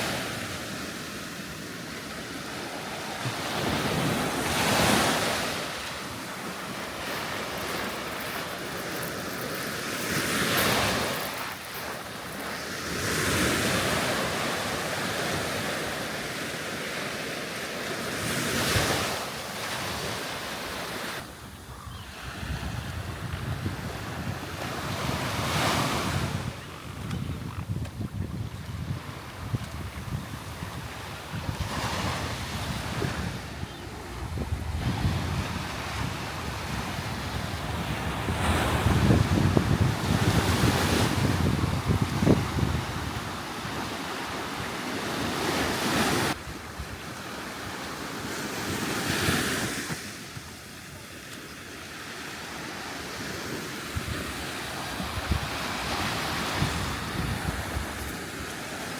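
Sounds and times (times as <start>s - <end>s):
sea waves breaking on shore: 0.0s - 21.4s, 27.9s - 58.9s
wind buffeting microphone: 21.6s - 43.9s, 53.9s - 58.5s.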